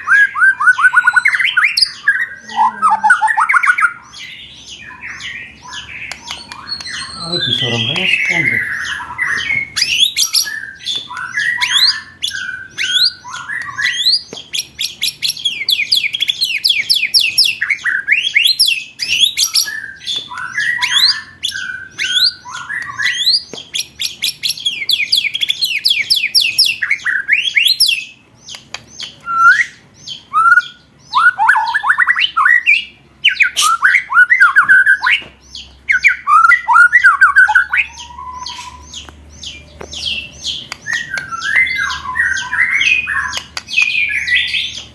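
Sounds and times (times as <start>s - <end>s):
harsh bird chattering: 0.7s - 17.9s.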